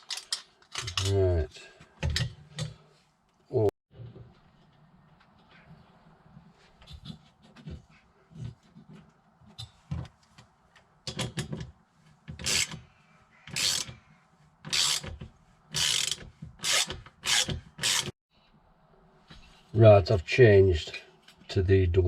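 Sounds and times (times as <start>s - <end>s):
hand tool tightening hose clip: 12.4s - 12.8s, 13.5s - 14.0s, 14.7s - 18.1s.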